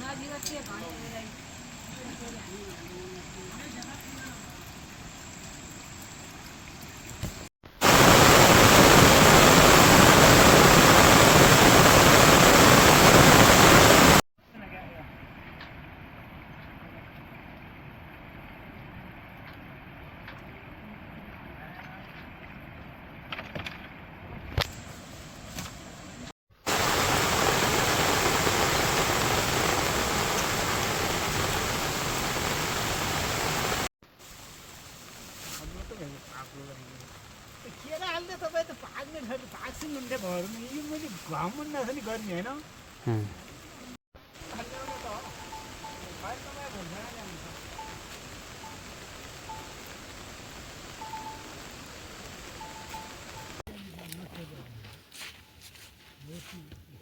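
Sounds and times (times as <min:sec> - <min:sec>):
rushing water: 0:00.0 - 0:14.2, 0:26.5 - 0:53.6
heavy rain falling: 0:07.3 - 0:14.2, 0:26.6 - 0:53.6
quiet even hiss: 0:24.7 - 0:55.1.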